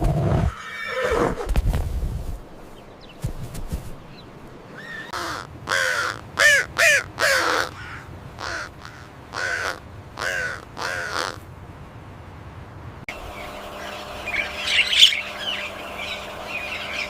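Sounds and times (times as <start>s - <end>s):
bird calling: 2.4s - 11.4s, 13.1s - 17.0s.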